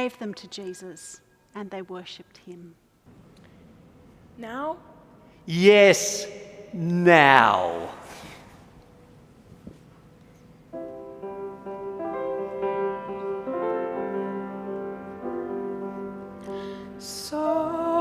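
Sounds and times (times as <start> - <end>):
piano chords: 8.9 - 18.0.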